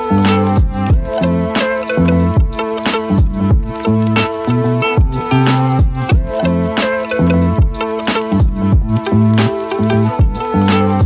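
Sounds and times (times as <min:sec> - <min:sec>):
background music with kick drum: 0:00.0 - 0:11.0.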